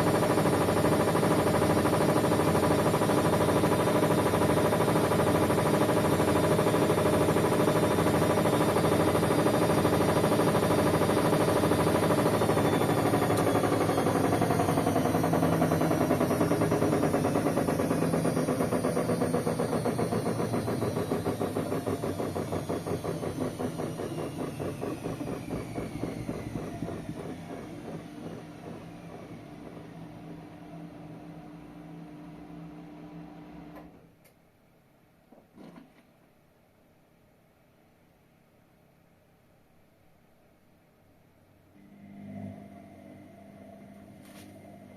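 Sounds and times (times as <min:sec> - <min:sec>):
washing machine drum spinning: 0:00.0 - 0:33.8.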